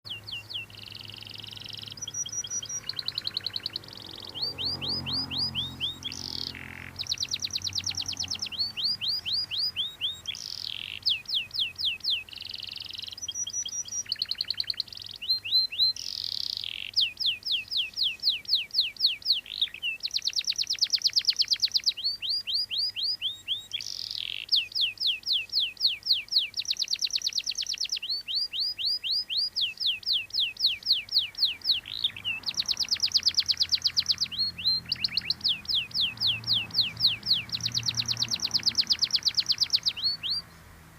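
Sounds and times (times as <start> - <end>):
canary singing trills: 0.0 - 40.7.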